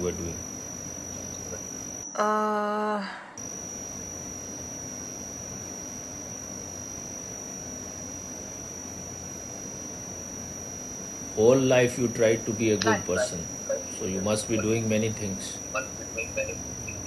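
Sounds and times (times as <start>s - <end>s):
high-pitched whine: 0.0s - 2.5s, 3.4s - 17.0s.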